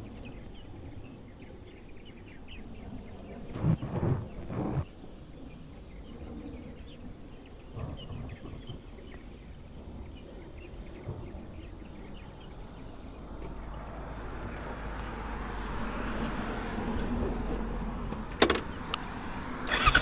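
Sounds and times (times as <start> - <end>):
low background rumble: 3.2 - 4.8.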